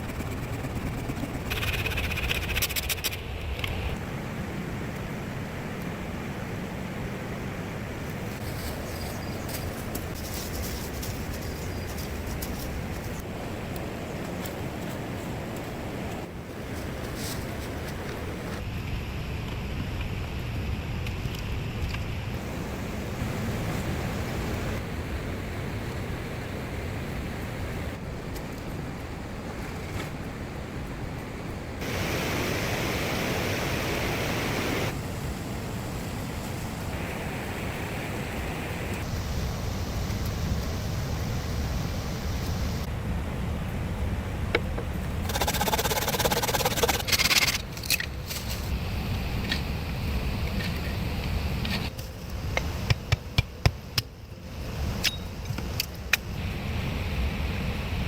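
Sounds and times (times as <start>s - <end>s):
rapid scraping: 0.0s - 3.4s, 45.2s - 47.6s
rushing wind: 0.0s - 58.0s.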